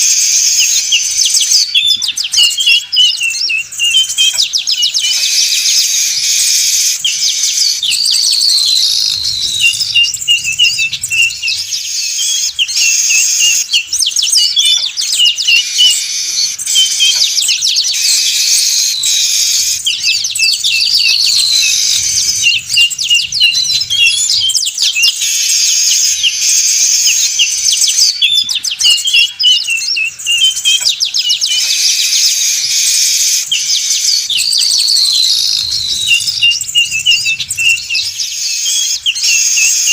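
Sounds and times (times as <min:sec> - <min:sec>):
weaver birds chattering: 0:00.0 - 0:39.9.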